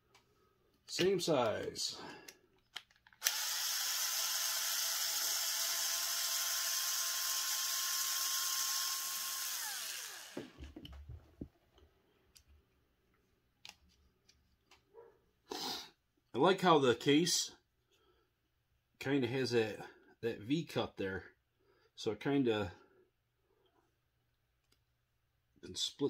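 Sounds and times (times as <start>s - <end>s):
faint clicks of parts: 0.0s - 3.3s, 11.7s - 14.9s, 23.6s - 24.9s
electric drill motor: 3.2s - 10.9s.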